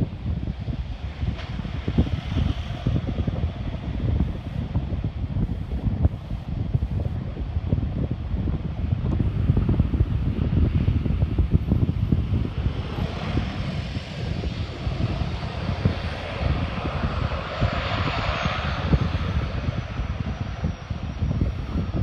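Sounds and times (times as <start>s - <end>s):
wind buffeting microphone: 0.0s - 22.0s
propeller plane passing: 9.4s - 22.0s.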